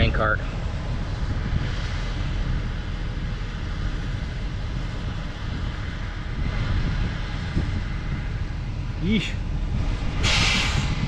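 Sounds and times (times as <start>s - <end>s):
machinery engines rumbling: 0.0s - 11.0s
hiss: 10.2s - 11.0s.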